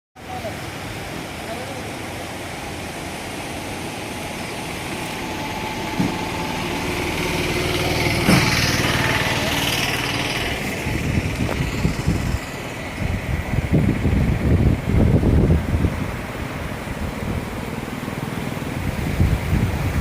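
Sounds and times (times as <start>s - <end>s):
steady rushing noise: 0.2s - 20.0s
small engine passing by: 4.5s - 15.6s
wind buffeting microphone: 4.6s - 20.0s.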